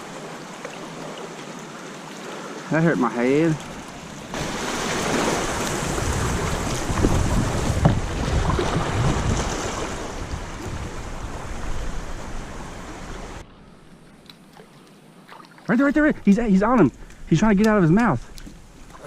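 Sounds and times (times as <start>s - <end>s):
rushing river water: 0.0s - 19.0s
wind buffeting microphone: 4.3s - 13.5s.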